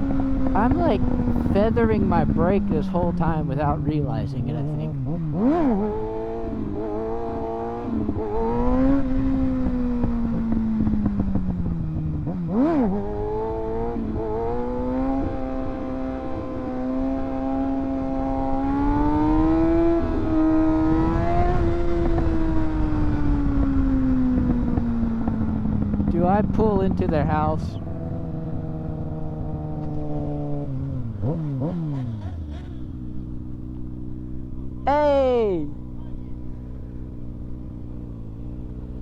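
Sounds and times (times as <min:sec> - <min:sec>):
motorcycle engine running: 0:00.0 - 0:39.0
wind noise on microphone: 0:17.9 - 0:26.5.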